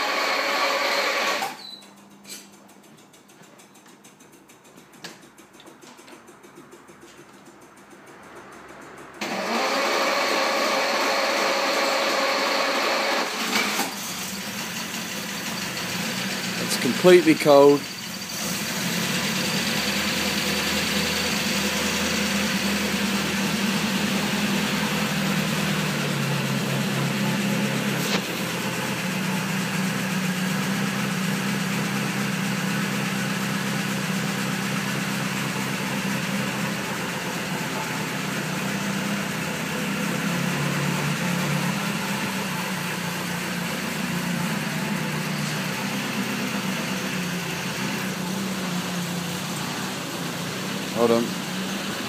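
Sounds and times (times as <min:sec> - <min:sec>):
car engine idling: 0:10.6 - 0:52.0.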